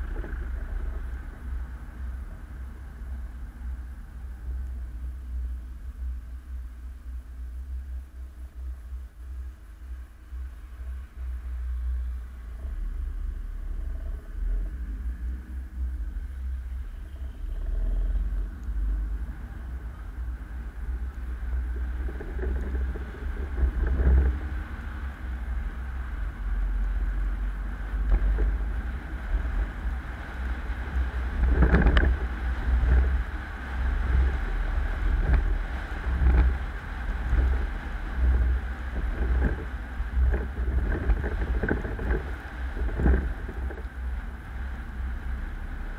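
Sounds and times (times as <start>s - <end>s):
road and wind noise rumble: 0.0s - 45.9s.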